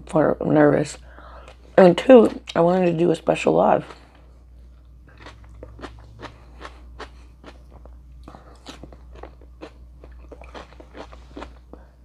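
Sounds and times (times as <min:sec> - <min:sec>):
low steady hum: 0:00.0 - 0:12.0
person chewing food: 0:03.8 - 0:12.0.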